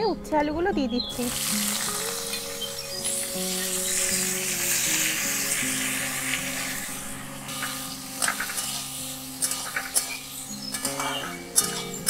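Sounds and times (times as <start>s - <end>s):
vegetables sizzling in oil: 1.1s - 12.0s.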